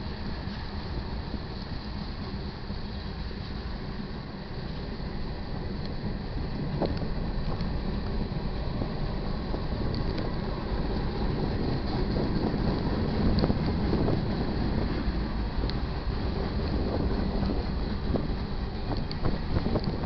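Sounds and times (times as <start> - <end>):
freight train rumbling: 0.0 - 20.0
faint clicks: 6.8 - 8.2, 9.8 - 10.3, 18.8 - 20.0.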